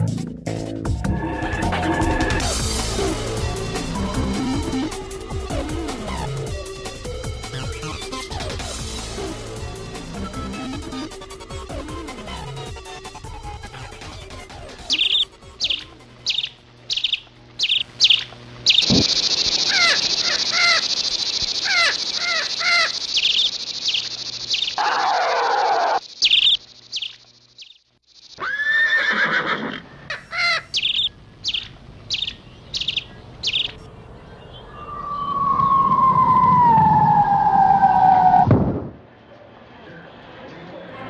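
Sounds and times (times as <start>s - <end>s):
high bird chirps: 14.8s - 28.7s, 30.1s - 35.9s
bird calls: 14.8s - 29.4s, 30.1s - 36.1s.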